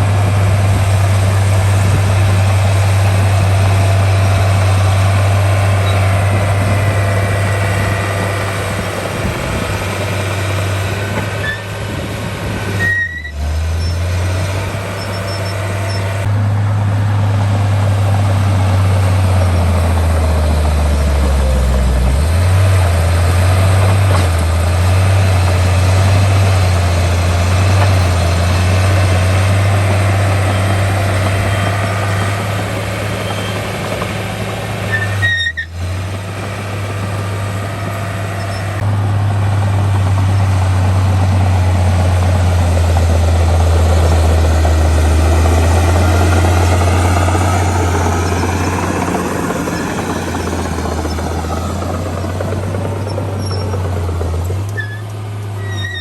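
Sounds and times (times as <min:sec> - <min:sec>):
diesel machinery engine drone: 0:00.0 - 0:56.0.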